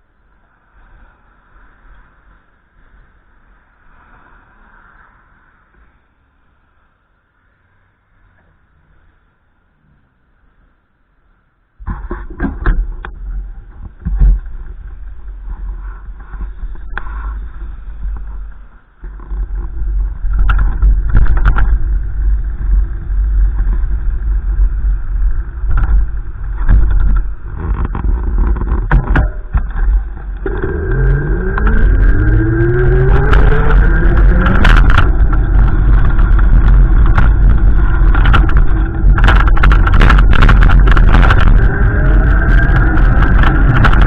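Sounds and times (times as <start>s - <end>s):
wind buffeting microphone: 12.0s - 44.0s
vehicle engine accelerating: 29.6s - 44.0s.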